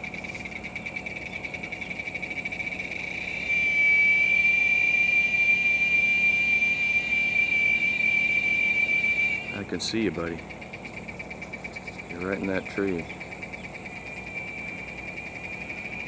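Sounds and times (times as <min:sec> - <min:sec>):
cicada singing: 0:00.0 - 0:16.0.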